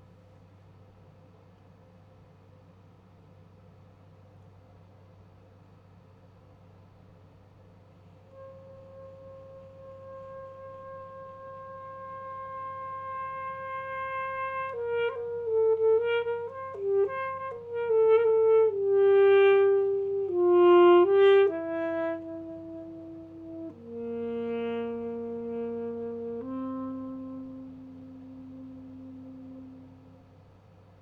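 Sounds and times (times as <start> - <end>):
alto saxophone: 8.2 - 31.0.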